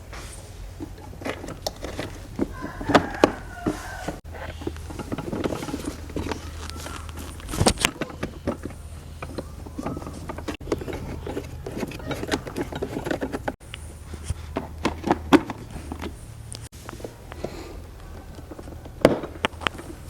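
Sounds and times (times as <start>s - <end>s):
taps and scrapes of parts: 0.1s - 20.0s.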